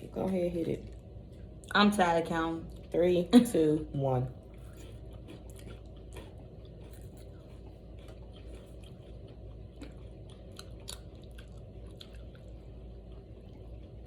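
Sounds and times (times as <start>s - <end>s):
steady low hum: 0.0s - 14.0s
people crunching crispy snack: 4.6s - 12.7s.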